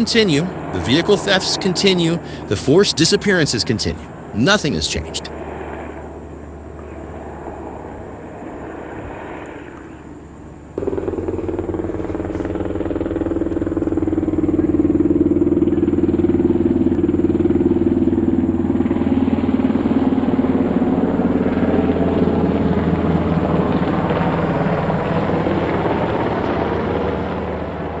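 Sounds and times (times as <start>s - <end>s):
helicopter blade chop: 0.0s - 5.3s, 10.8s - 16.3s
helicopter rotor and turbine: 0.0s - 28.0s.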